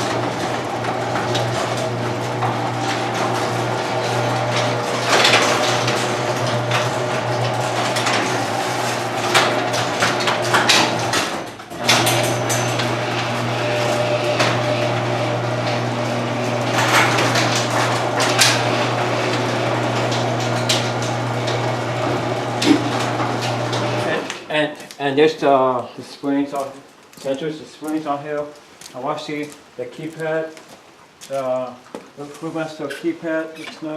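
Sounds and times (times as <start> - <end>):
garage door motor hum: 0.0 - 24.5
garage door rollers rattling: 0.0 - 24.5.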